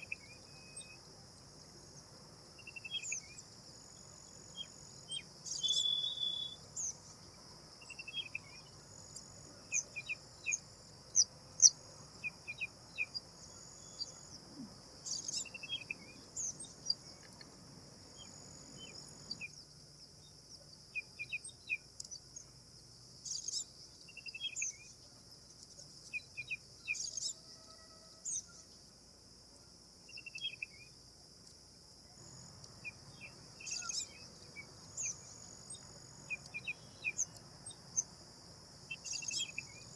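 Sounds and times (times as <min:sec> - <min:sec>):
bird chirps and calls: 0:05.5 - 0:07.0, 0:33.2 - 0:34.2, 0:38.9 - 0:39.9.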